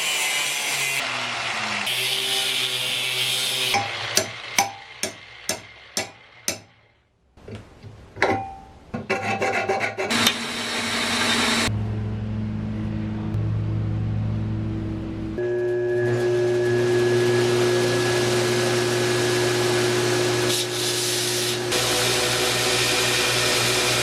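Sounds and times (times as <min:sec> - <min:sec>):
knocks and scraping: 0:07.4 - 0:10.4.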